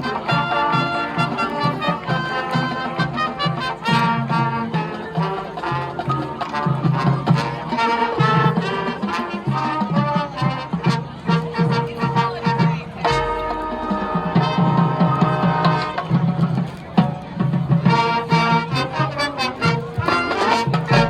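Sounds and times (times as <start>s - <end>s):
brass playing tune: 0.0s - 16.2s, 17.8s - 21.0s
marching band playing: 0.0s - 21.0s
steady drum beat: 11.1s - 16.8s, 19.6s - 21.0s.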